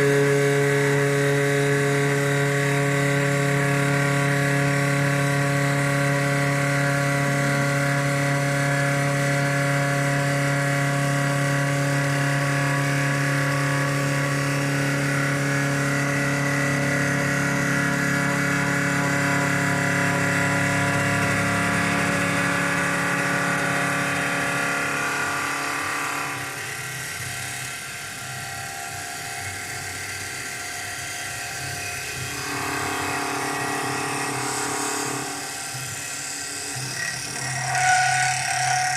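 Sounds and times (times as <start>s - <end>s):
wood lathe machine whine: 0.0s - 38.9s.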